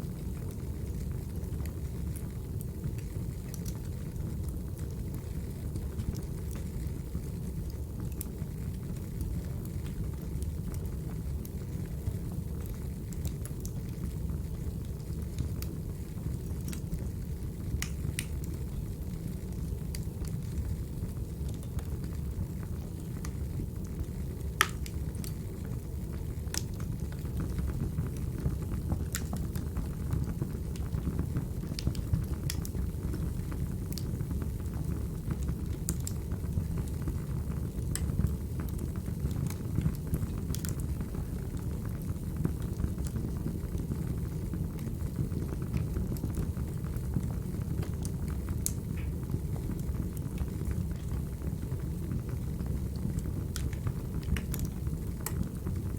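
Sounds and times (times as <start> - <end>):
low rumble of burning logs: 0.0 - 55.9
fire pops and snaps: 2.9 - 8.4, 12.6 - 18.8, 21.4 - 55.9.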